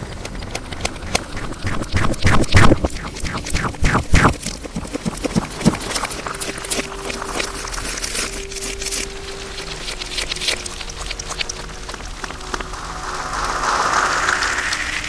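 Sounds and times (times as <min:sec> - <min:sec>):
slime squishing with wet crackles: 0:04.5 - 0:12.6
faint steady tone: 0:05.8 - 0:14.9.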